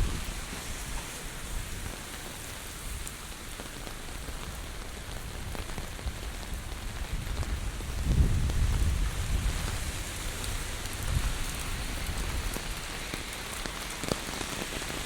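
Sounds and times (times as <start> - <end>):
wind buffeting microphone: 0.0 - 3.1, 5.2 - 13.0
heavy rain falling: 0.0 - 15.0.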